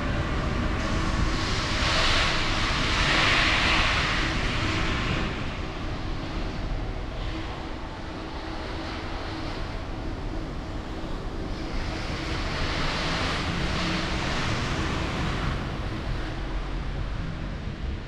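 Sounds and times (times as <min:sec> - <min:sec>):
vehicle road and engine noise: 0:00.0 - 0:18.0
hiss: 0:00.8 - 0:05.6.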